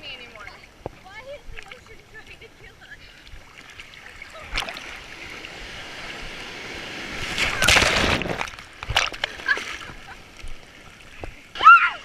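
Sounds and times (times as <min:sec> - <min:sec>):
wave breaking: 0:03.3 - 0:12.0.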